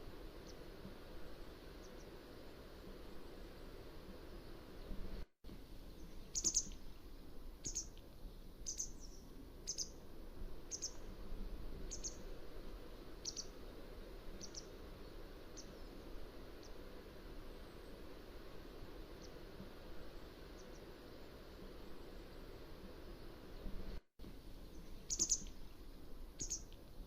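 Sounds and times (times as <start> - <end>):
steady background hiss: 0.0 - 27.0
bird chirping: 5.9 - 7.0, 7.6 - 8.0, 8.6 - 10.0, 10.7 - 11.1, 11.9 - 12.3, 13.2 - 13.6, 14.4 - 14.8, 24.6 - 25.8, 26.4 - 26.8.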